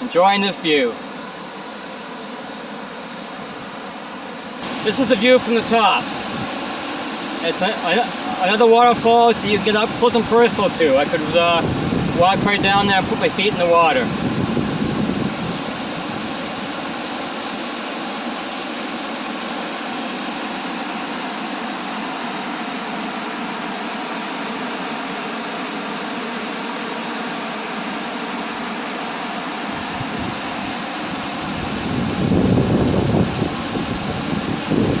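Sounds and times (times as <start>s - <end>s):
waterfall rushing: 4.6s - 17.3s.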